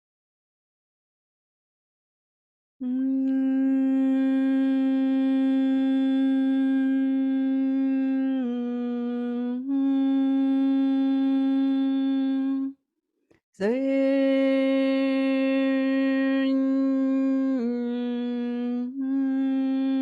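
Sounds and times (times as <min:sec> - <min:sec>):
woman humming long notes: 0:02.8 - 0:12.8, 0:13.6 - 0:20.0.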